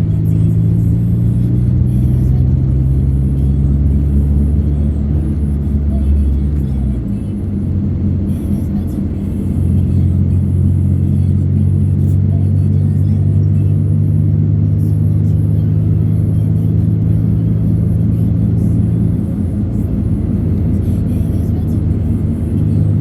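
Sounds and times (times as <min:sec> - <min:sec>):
vehicle engine droning: 0:00.0 - 0:23.0.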